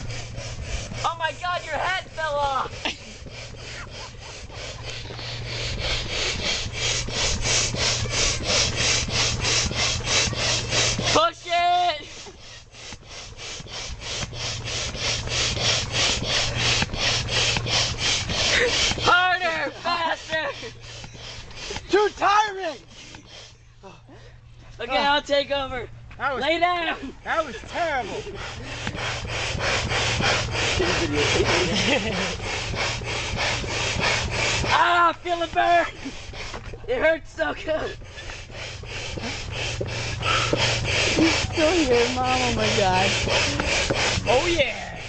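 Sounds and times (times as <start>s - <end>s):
manual air pump hissing: 0.0s - 45.0s.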